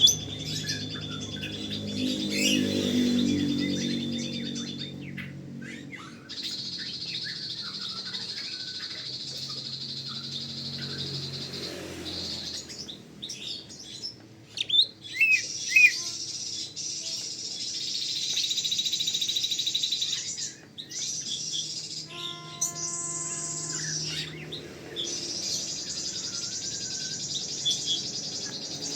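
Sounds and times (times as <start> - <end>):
bird chirps and whistles: 14.6 - 28.9.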